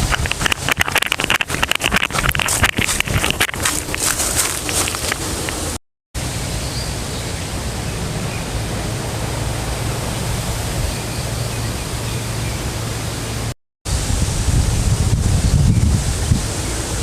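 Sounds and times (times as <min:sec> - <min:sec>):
wind buffeting microphone: 0:00.0 - 0:05.8, 0:13.9 - 0:17.0
wind blowing: 0:00.0 - 0:17.0.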